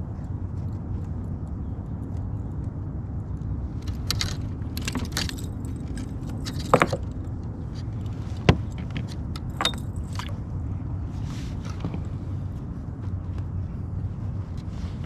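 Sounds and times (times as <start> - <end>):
fishing gear clicking and rattling: 3.7 - 10.4.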